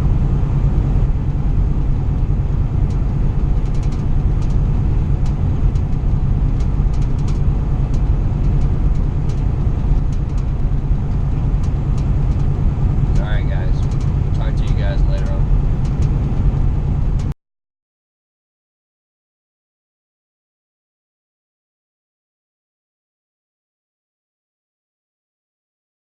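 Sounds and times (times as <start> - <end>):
truck engine rumble from cab: 0.0 - 17.4.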